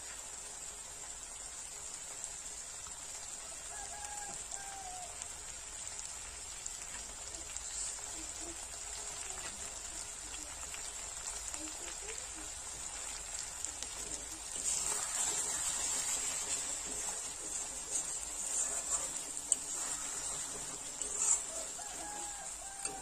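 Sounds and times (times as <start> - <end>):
food sizzling in oil: 0.0 - 23.0
metal spatula scraping pan: 14.5 - 23.0.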